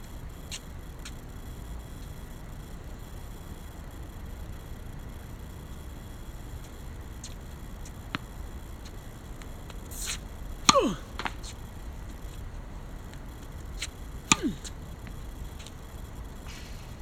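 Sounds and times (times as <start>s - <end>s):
racket striking shuttlecock: 9.4s - 12.3s, 13.1s - 15.2s
racket swish: 13.8s - 14.7s.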